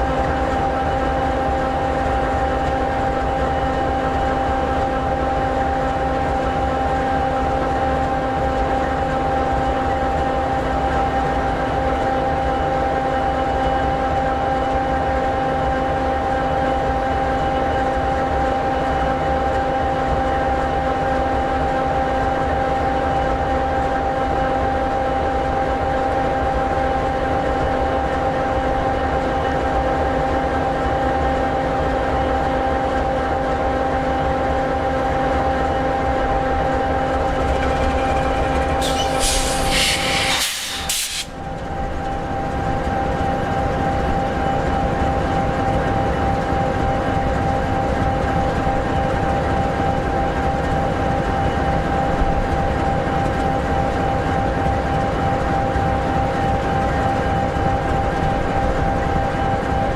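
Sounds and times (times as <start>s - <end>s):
diesel locomotive idling: 36.1s - 41.4s
burst of hiss: 38.8s - 41.4s.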